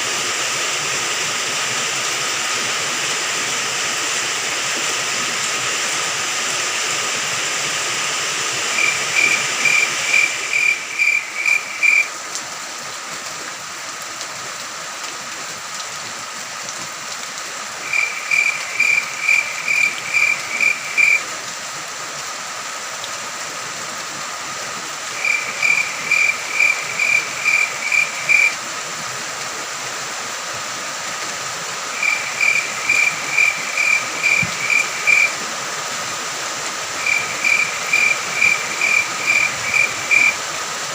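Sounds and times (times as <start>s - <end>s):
steady rain: 0.0s - 40.9s
cricket chirping: 8.7s - 12.1s, 17.8s - 21.3s, 25.2s - 28.6s, 31.9s - 35.4s, 37.0s - 40.4s
high-pitched insect drone: 8.7s - 12.1s, 17.9s - 21.2s, 25.2s - 28.6s, 31.9s - 35.4s, 37.0s - 40.4s.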